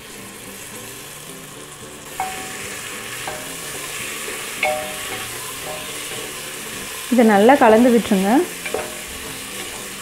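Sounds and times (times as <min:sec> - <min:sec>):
food sizzling in oil: 0:00.0 - 0:10.0
short metallic rings of pot: 0:02.1 - 0:06.9, 0:07.5 - 0:10.0.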